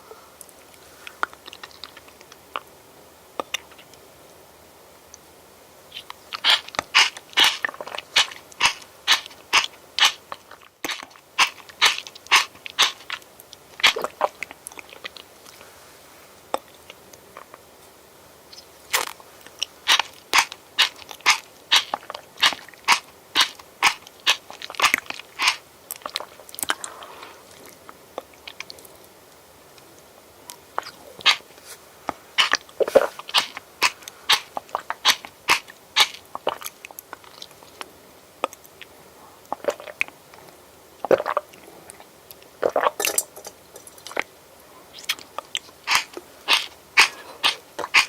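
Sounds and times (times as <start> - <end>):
person chewing crunchy food: 1.1 - 2.7, 5.9 - 15.6, 18.5 - 29.0, 30.5 - 38.9, 39.5 - 43.1, 44.9 - 48.0.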